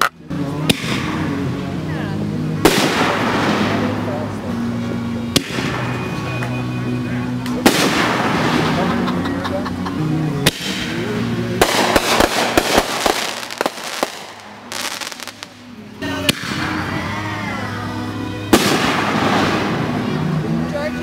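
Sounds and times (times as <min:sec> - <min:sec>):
crackling firework pops: 0:02.6 - 0:03.9, 0:05.4 - 0:05.8, 0:07.4 - 0:08.9, 0:10.4 - 0:10.9, 0:11.6 - 0:15.6, 0:18.5 - 0:19.8
firework bangs: 0:02.6 - 0:04.4, 0:05.3 - 0:06.5, 0:07.6 - 0:09.2, 0:10.4 - 0:15.7, 0:18.5 - 0:20.4.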